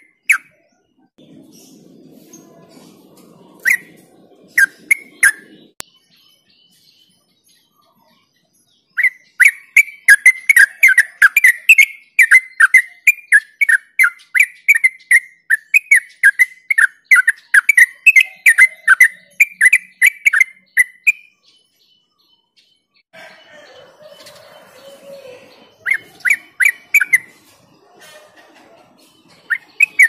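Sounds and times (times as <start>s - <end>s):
bird singing whistled notes: 3.6s - 23.0s, 24.1s - 27.4s, 29.2s - 30.0s.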